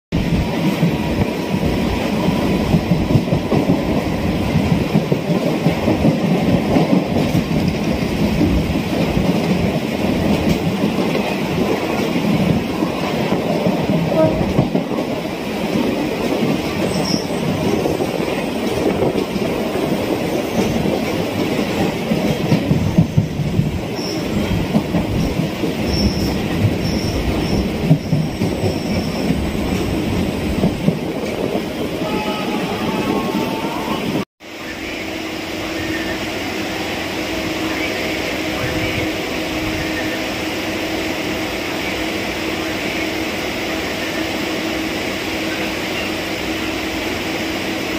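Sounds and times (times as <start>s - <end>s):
train carriage rumbling and rattling: 0.1s - 47.9s
high wheel squeals: 16.9s - 17.4s, 25.8s - 29.6s.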